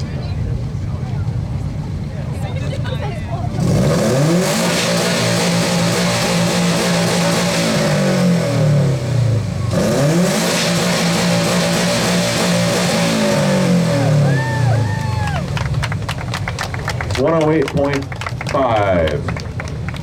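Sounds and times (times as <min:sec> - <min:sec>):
car engine revving hard: 0:03.5 - 0:15.8.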